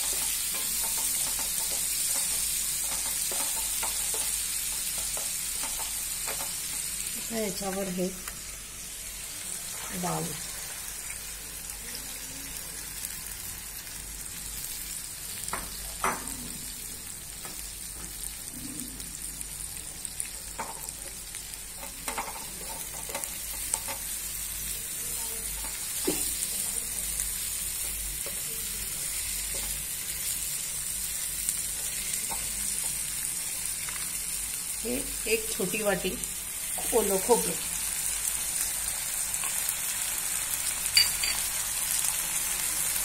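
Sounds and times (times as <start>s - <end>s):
beans sizzling in hot oil: 0.0s - 43.0s.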